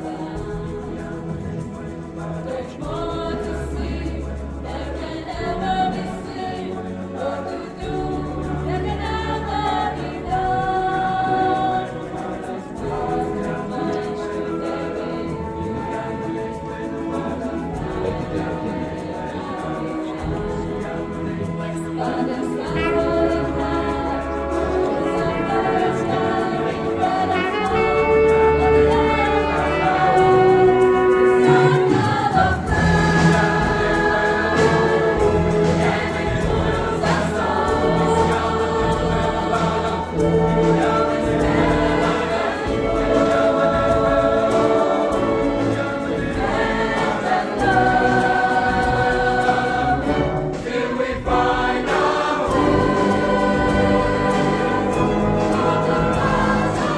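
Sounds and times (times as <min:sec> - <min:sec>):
choir singing held chords: 0:00.0 - 0:56.9
orchestral accompaniment: 0:00.0 - 0:56.9.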